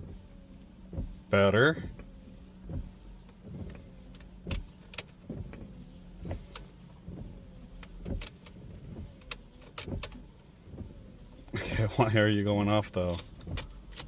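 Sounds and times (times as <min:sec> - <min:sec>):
wiper clicks: 0:00.0 - 0:11.6, 0:12.5 - 0:14.0
wiper motor whining: 0:00.0 - 0:14.0.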